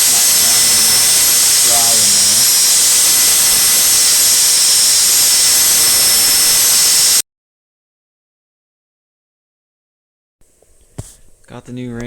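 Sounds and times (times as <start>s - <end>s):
power drill whining with hiss: 0.0s - 7.2s.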